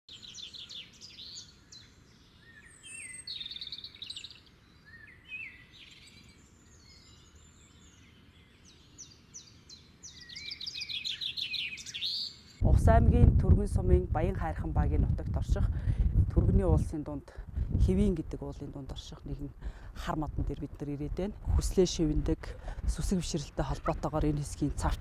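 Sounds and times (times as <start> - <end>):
small birds singing: 0.1 - 12.7.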